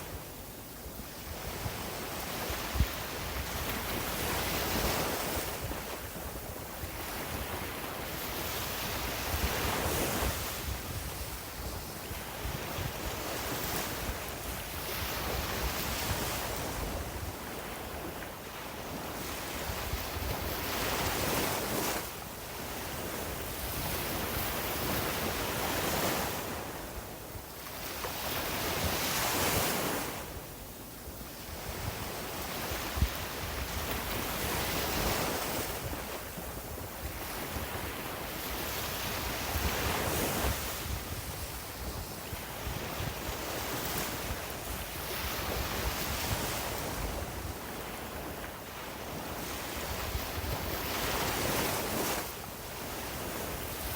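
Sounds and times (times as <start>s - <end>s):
sea waves breaking on beach: 31.3s - 53.9s.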